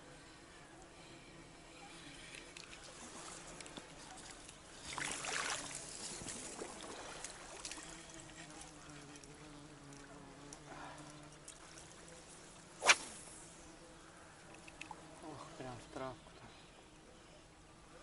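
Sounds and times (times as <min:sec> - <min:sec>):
faint steady buzzing: 0:00.0 - 0:18.0
trickling water: 0:02.3 - 0:12.7
small water splashes: 0:02.6 - 0:08.0
sharp splash: 0:04.9 - 0:07.8, 0:12.8 - 0:13.4.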